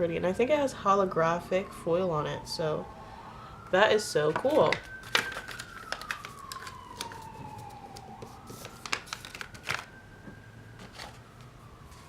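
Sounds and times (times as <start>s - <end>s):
fire truck siren wailing: 0.5s - 12.0s
clicks and rustles of handling items: 4.3s - 9.9s.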